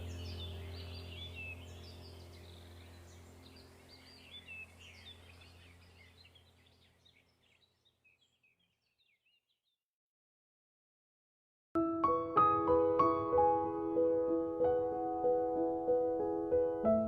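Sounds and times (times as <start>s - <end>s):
low steady hum: 0.0s - 7.9s
small birds chirping: 0.0s - 9.8s.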